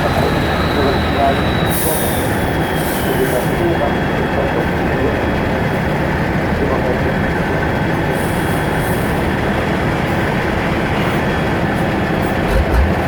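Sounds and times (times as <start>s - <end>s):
diesel truck engine under load: 0.0s - 13.0s
deep low thumps: 12.5s - 13.0s.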